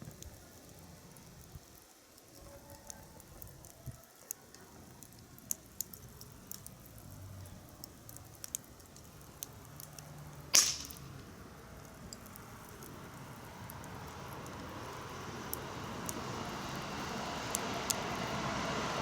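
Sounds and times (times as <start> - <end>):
sharp pops and cracks: 0.0 - 14.6
wood fire crackling: 0.0 - 19.0.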